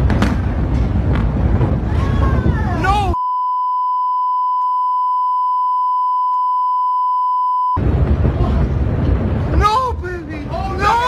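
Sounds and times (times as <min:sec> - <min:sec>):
loud noisy rush: 0:00.0 - 0:03.2, 0:07.8 - 0:11.0
electronic beep tone: 0:03.2 - 0:07.8.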